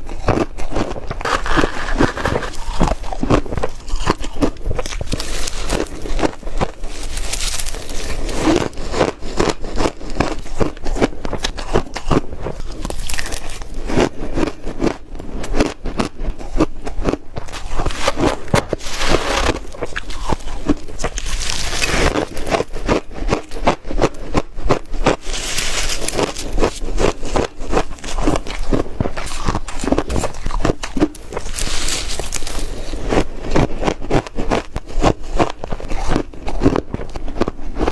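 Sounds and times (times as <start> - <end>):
person chewing ice: 0.0 - 37.9.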